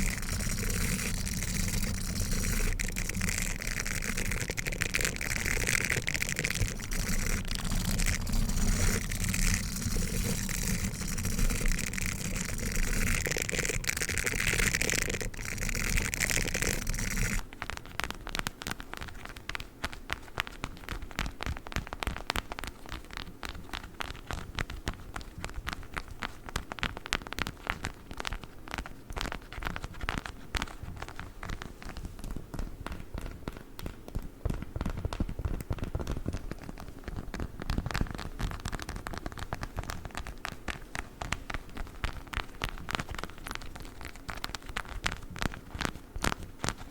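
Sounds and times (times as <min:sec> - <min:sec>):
toothbrush scratching: 0:00.0 - 0:17.4
fine clicks and crackles: 0:00.0 - 0:46.9.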